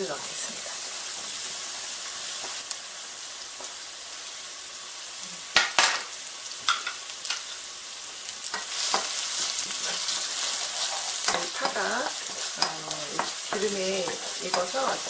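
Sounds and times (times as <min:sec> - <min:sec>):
onions sizzling in hot oil: 0:00.0 - 0:15.0
wooden spatula stirring: 0:08.9 - 0:15.0.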